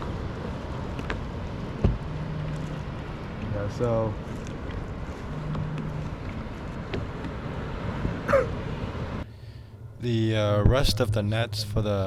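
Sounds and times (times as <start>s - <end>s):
low rumble: 0.0s - 12.0s
wind noise on microphone: 10.4s - 11.8s.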